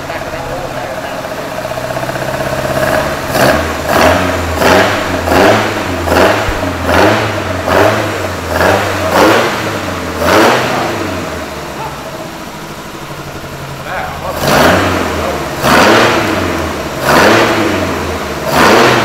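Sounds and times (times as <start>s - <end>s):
engine revving in throttle blips: 0.0s - 19.0s.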